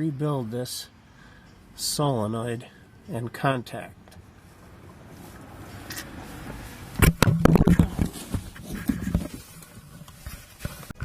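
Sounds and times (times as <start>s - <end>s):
metal clunks and scraping: 5.8s - 11.0s.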